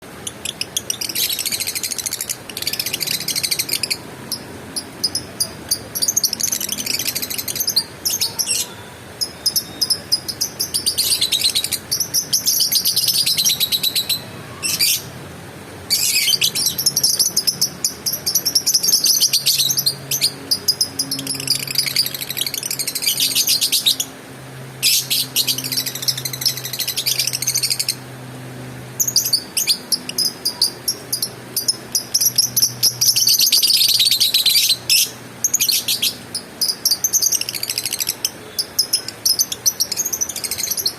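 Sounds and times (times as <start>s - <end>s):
lovebird trilling: 0.2s - 15.1s, 15.9s - 24.1s.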